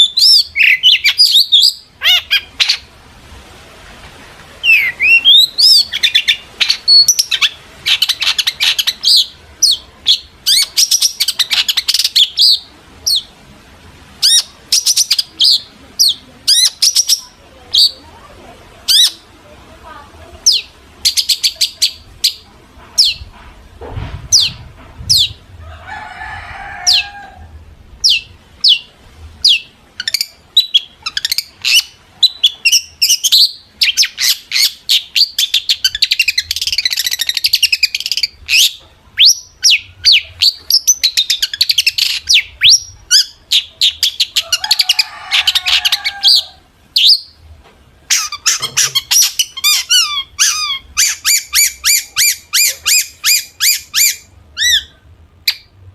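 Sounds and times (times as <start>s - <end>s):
harsh rasping bird calls: 0.0s - 2.9s, 4.6s - 13.3s, 18.8s - 19.3s, 48.1s - 55.7s
shrike singing: 4.6s - 13.3s.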